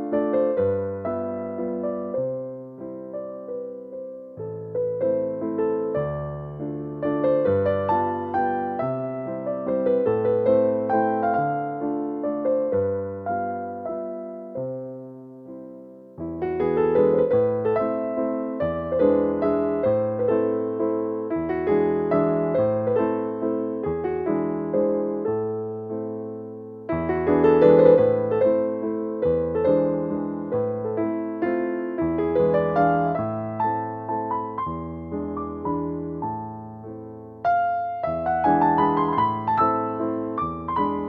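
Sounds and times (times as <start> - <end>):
gentle electric piano melody: 0.0 - 41.0.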